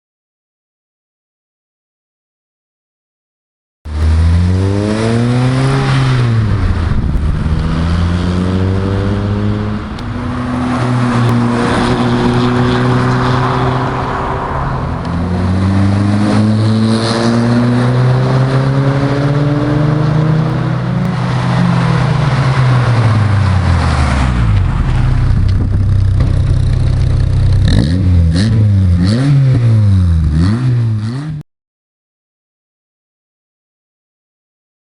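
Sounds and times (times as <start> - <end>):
car engine revving: 3.9 - 31.4.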